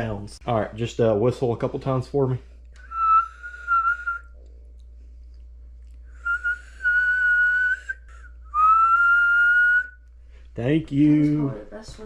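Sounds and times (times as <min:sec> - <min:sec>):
woman whistling held notes: 0:02.8 - 0:04.4, 0:06.2 - 0:10.0.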